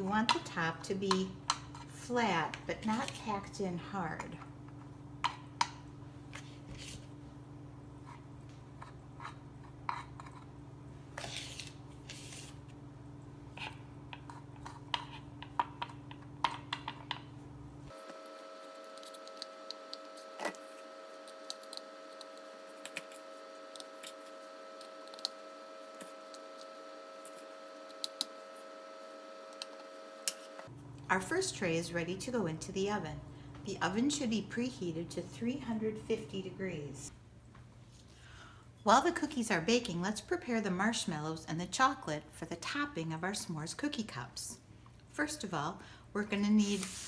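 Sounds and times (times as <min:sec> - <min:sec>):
background hum: 0:00.0 - 0:46.6.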